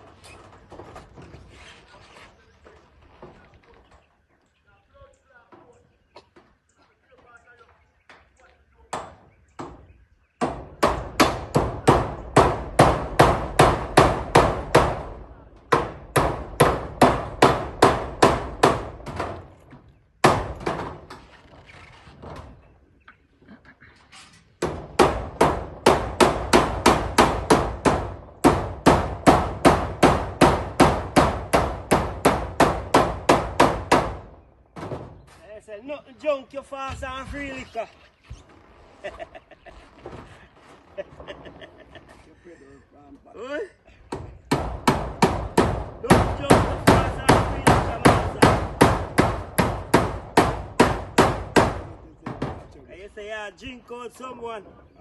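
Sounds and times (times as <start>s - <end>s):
hammer striking metal roofing: 8.9s - 21.3s, 24.5s - 35.4s, 44.0s - 52.8s.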